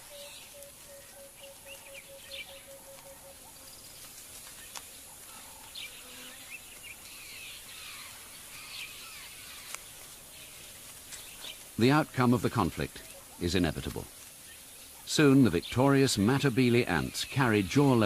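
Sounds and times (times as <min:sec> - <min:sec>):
bird chirps and calls: 0:00.0 - 0:04.0
faint steady hiss: 0:00.0 - 0:18.0.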